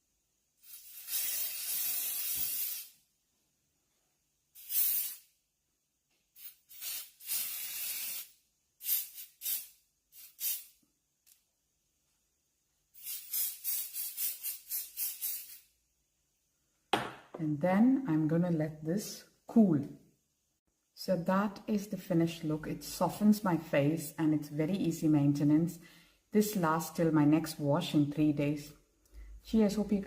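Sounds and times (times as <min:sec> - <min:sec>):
hairspray spraying: 0:00.6 - 0:03.0, 0:04.6 - 0:05.3, 0:06.4 - 0:10.8, 0:13.0 - 0:15.7.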